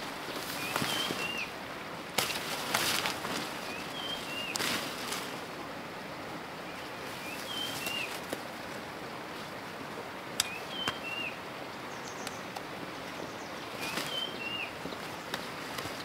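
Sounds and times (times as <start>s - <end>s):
outdoor background hiss: 0.0s - 16.0s
sharp clicks: 10.4s - 11.0s
songbird whistled call: 10.4s - 11.4s, 13.8s - 14.7s.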